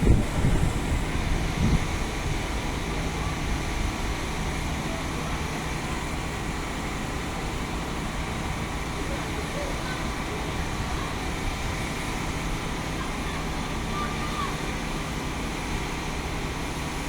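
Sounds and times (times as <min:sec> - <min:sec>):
vehicle rumble: 0:00.0 - 0:03.4
wind buffeting microphone: 0:00.0 - 0:04.1.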